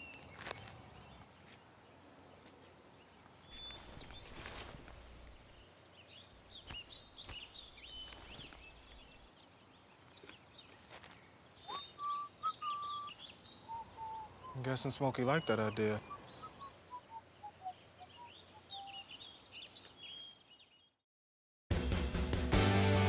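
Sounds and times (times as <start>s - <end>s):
birds chirping: 0.0s - 21.0s
soft rustles: 3.5s - 5.6s, 6.6s - 9.3s, 9.9s - 12.0s.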